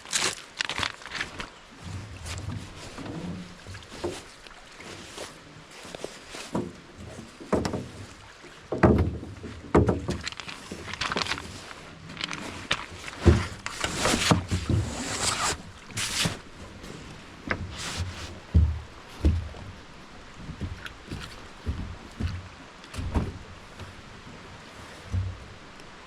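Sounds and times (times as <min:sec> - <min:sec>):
camp gear knocks and scrapes: 0:08.7 - 0:24.0.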